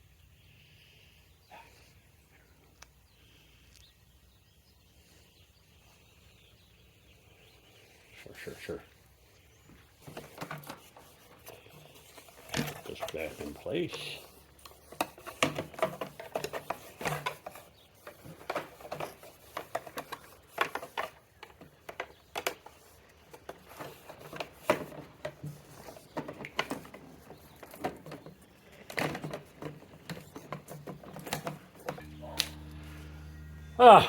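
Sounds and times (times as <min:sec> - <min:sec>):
hand tools clicking and knocking: 0:10.0 - 0:32.5
steady low hum: 0:31.8 - 0:34.0.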